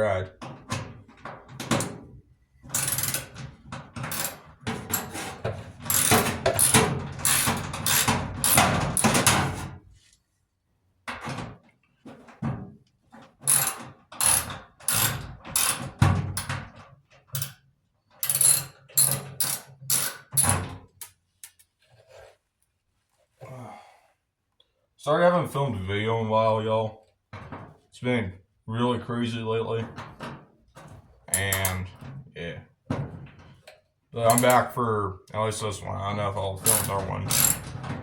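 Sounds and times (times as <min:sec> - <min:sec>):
ratchet wrench clicking: 0:05.9 - 0:08.6, 0:13.5 - 0:15.8, 0:18.2 - 0:20.5, 0:36.7 - 0:37.6.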